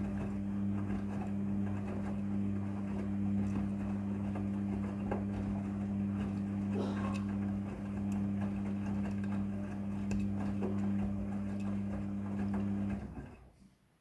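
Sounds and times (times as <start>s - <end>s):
washing machine motor hum: 0.0s - 13.6s.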